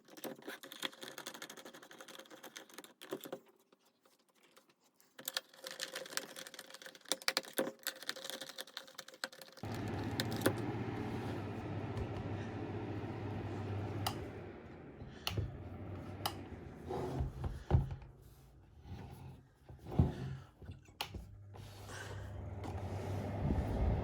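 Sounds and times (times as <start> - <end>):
fan heater humming: 9.6 - 18.7, 21.0 - 24.0.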